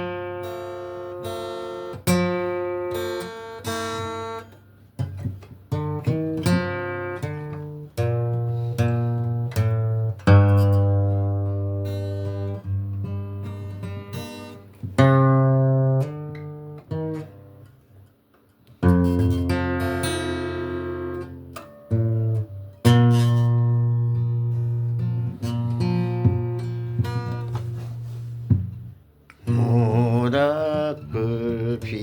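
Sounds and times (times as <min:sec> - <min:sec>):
strummed acoustic guitar: 0:00.0 - 0:32.0.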